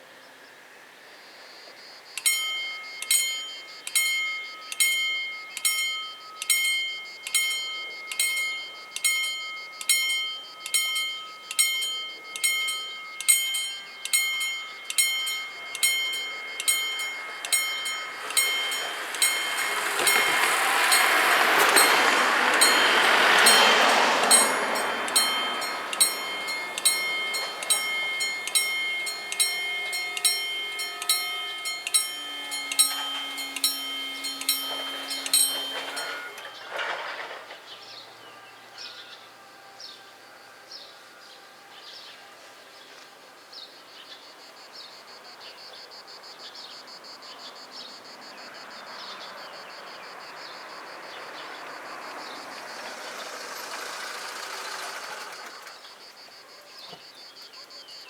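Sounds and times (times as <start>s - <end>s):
insect chirring: 1.2s - 36.4s
level crossing bells ringing: 2.2s - 37.5s, 49.1s - 55.8s.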